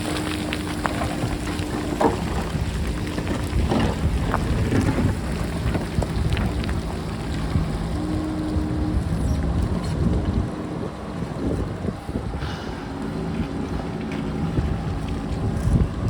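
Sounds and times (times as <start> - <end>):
rocks knocking and clattering: 0.0 - 7.9
diesel engine running: 0.0 - 16.0
wind buffeting microphone: 0.0 - 16.0.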